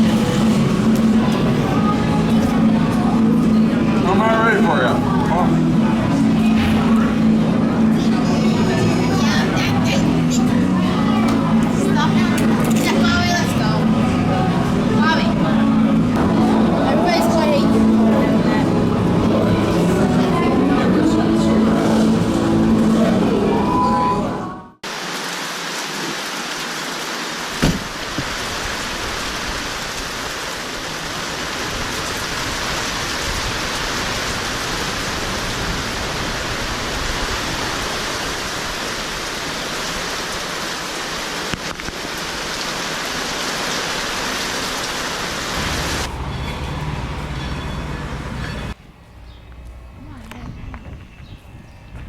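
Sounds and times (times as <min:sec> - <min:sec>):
heavy rain: 0:00.0 - 0:48.8.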